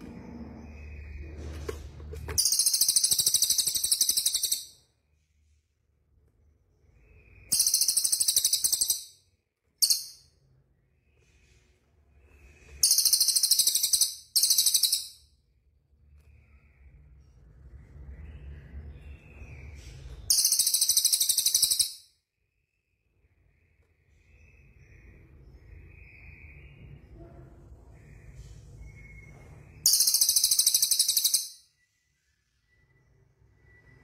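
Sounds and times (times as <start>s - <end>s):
songbirds high-pitched trills: 7.0s - 9.2s, 9.8s - 10.4s, 12.5s - 15.2s, 18.4s - 22.1s, 27.9s - 31.8s.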